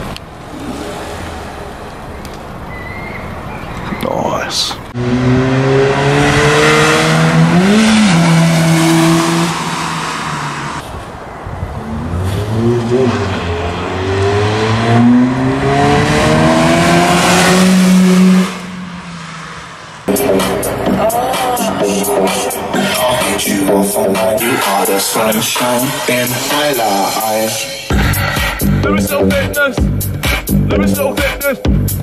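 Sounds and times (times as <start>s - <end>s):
car engine accelerating: 0.0s - 4.1s, 4.7s - 27.2s.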